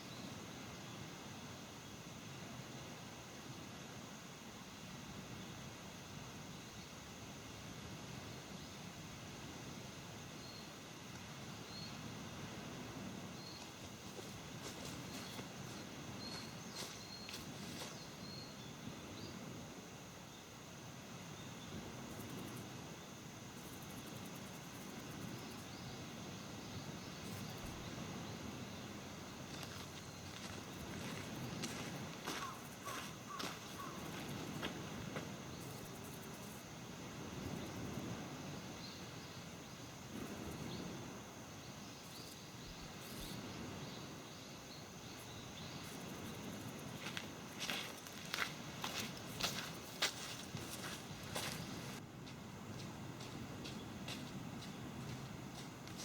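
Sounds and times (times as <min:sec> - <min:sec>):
faint insect chirping: 0:00.0 - 0:56.0
rustling noises: 0:13.6 - 0:18.1, 0:46.9 - 0:52.0.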